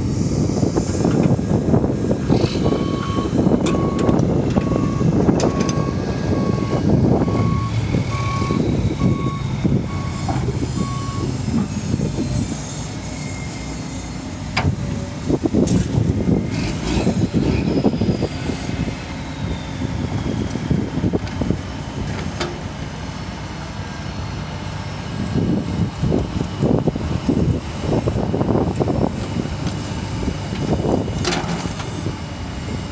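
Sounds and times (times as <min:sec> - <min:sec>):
diesel engines rumbling: 0:00.0 - 0:32.9
reversing alarm beeping: 0:02.6 - 0:11.5.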